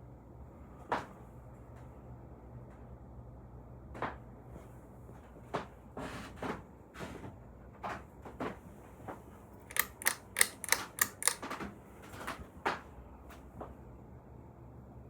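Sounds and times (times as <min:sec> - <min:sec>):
ceiling fan humming: 0:09.6 - 0:11.5
light clicks: 0:09.7 - 0:11.4.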